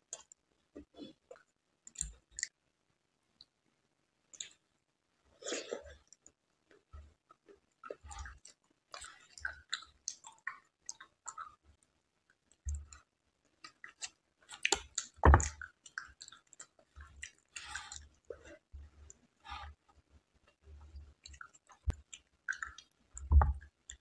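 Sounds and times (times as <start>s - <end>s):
wet chewing: 7.8s - 11.6s, 12.3s - 18.7s, 20.5s - 24.0s.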